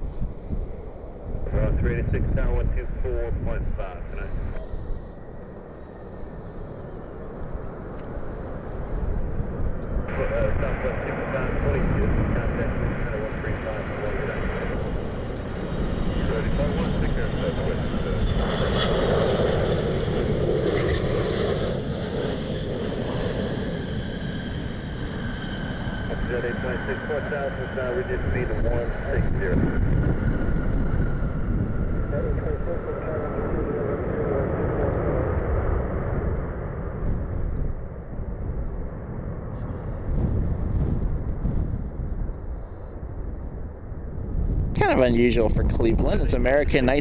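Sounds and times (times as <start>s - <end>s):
low rumble: 0.0s - 21.5s
jet aircraft engines rumbling: 0.0s - 47.0s.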